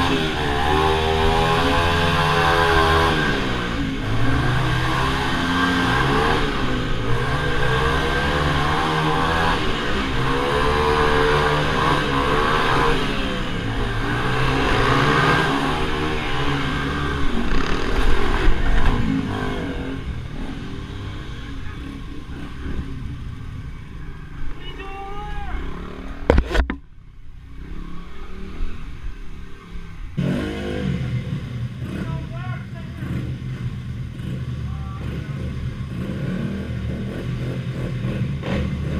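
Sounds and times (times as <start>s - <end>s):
minibike engines revving: 0.0s - 26.6s, 27.3s - 38.9s.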